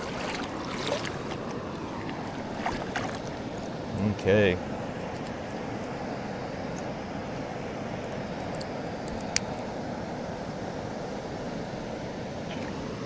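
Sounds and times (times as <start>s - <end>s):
river water rushing: 0.0s - 8.0s.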